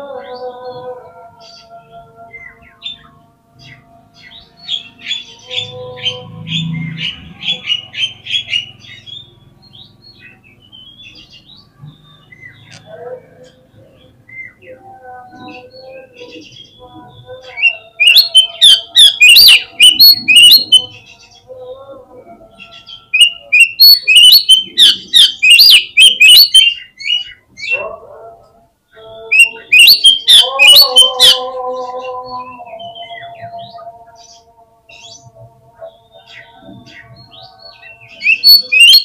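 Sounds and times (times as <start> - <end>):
bird singing sharp high notes: 17.5 - 21.4, 22.6 - 27.4, 29.3 - 33.8, 37.8 - 39.0.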